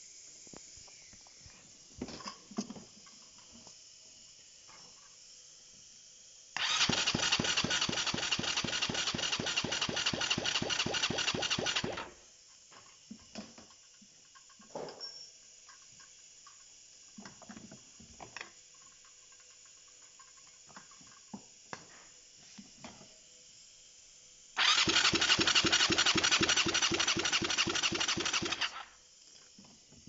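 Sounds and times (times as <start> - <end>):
engine cranked by starter motor: 6.6 - 12.1, 24.6 - 29.0.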